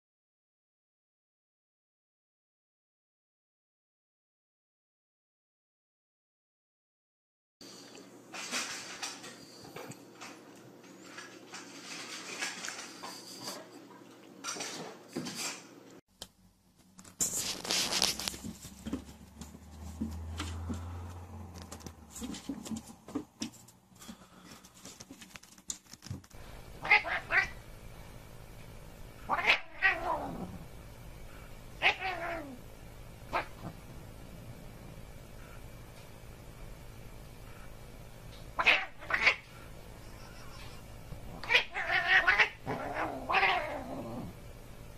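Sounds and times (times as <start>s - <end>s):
cat meowing: 26.8s - 27.6s, 29.3s - 30.5s, 31.8s - 32.6s, 41.4s - 44.0s.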